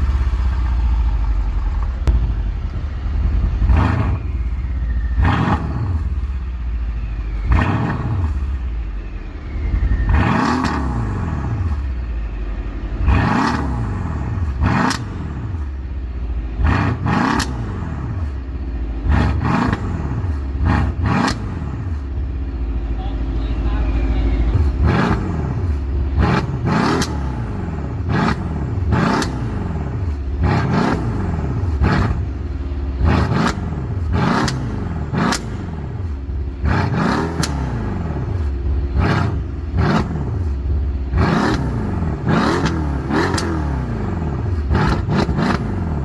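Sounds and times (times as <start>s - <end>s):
car engine idling and revving: 0.0s - 46.0s
exhaust cracks: 16.6s - 18.4s, 24.6s - 46.0s.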